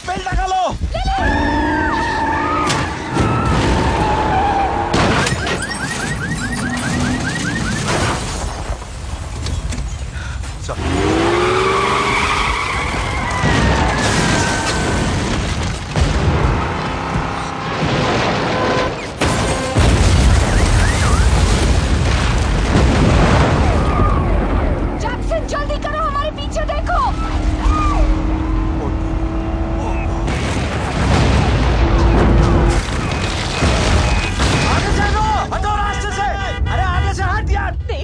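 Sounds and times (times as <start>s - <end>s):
screeching tyres: 1.2s - 7.8s, 9.5s - 15.2s, 23.9s - 30.4s, 31.6s - 34.5s
crashes: 2.6s - 9.4s, 10.3s - 37.0s
car engines: 8.5s - 19.8s, 23.6s - 36.7s
heavy rumble: 12.9s - 38.0s.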